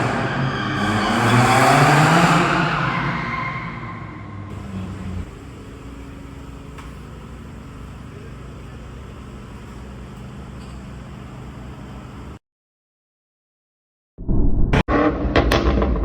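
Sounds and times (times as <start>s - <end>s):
car engine idling: 4.5s - 12.3s.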